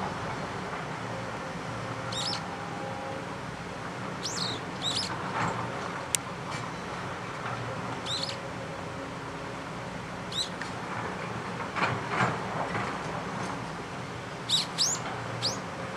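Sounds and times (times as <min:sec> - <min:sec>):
bird giving thin high calls: 0:04.2 - 0:05.1, 0:14.5 - 0:15.6.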